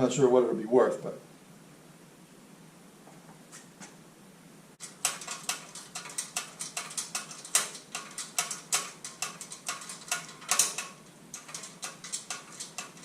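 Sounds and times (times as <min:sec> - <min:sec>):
hand ratchet clicking: 0:04.8 - 0:13.0.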